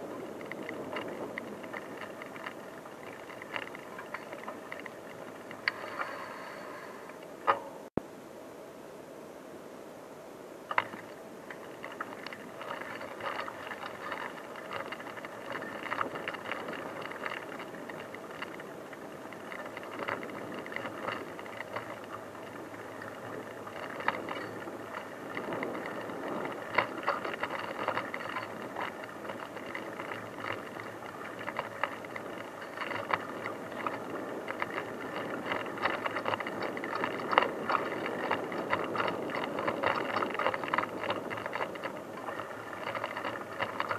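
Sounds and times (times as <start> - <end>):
bicycle rattling and clicking: 0.0 - 7.9, 10.7 - 43.9
bicycle rolling on rough track: 0.0 - 7.9, 10.6 - 43.9.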